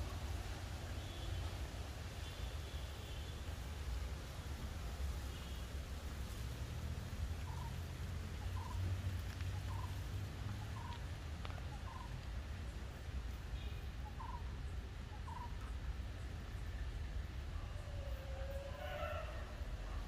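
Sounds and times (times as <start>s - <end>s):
bird calling: 7.4s - 12.2s, 13.6s - 15.8s.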